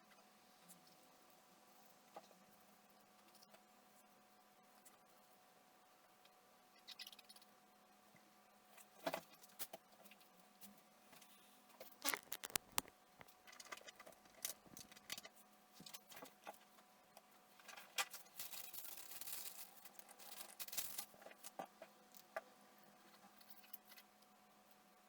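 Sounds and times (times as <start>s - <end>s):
small parts and tools clicking: 11.2s - 16.6s, 17.6s - 22.4s
scratchy rubbing: 11.9s - 12.9s.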